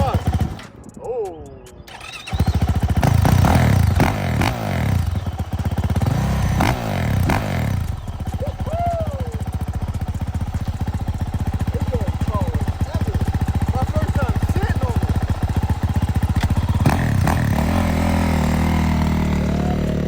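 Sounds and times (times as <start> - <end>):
motorcycle engine revving and idling: 0.0 - 1.0, 1.8 - 20.0.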